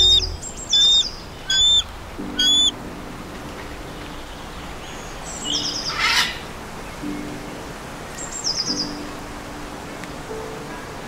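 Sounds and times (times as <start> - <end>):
bird calling: 0.0 - 2.8.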